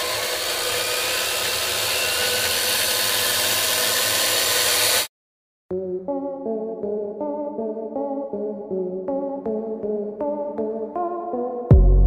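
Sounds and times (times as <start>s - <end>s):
small motors whirring whine: 0.0s - 5.1s.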